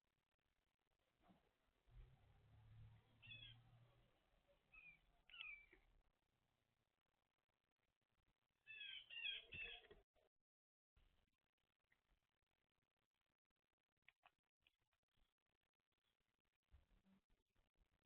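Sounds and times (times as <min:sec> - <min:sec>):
faint bird calls: 0:03.2 - 0:03.6, 0:08.6 - 0:10.0.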